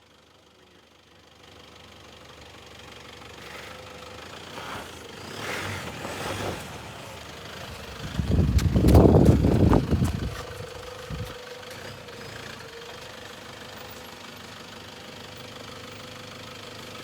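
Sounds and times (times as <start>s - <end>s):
pickup truck engine running: 1.6s - 17.0s.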